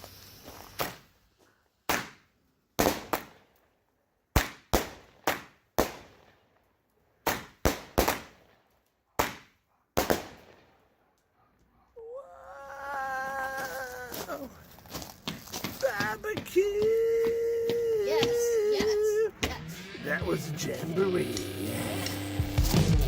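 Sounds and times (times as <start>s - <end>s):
fireworks cake bangs: 0.4s - 1.2s, 1.8s - 3.4s, 4.3s - 6.4s, 7.2s - 8.6s, 9.2s - 10.7s, 15.4s - 20.4s.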